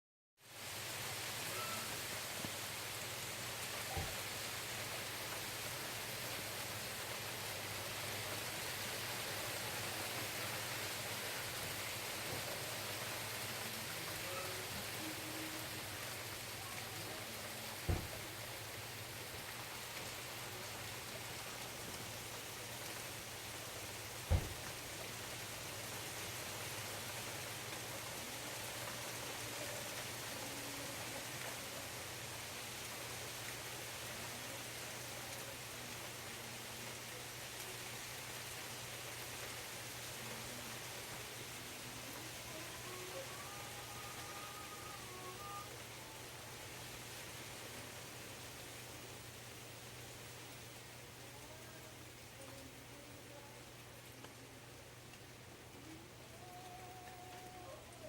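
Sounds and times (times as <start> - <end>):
steady rain falling: 0.4 - 58.0
dull thump: 17.9 - 18.2, 24.3 - 24.7.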